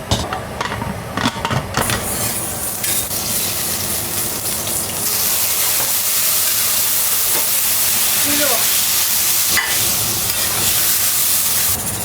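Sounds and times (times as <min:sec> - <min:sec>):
cookware knocking: 0:00.1 - 0:01.9
cooking hiss on stove: 0:00.6 - 0:12.0.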